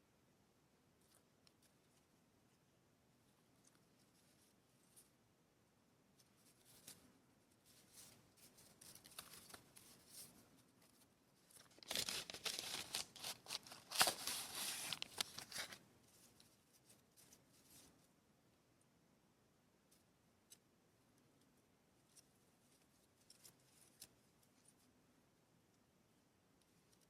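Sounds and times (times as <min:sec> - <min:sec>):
paper and packaging rustling: 0:07.7 - 0:17.9.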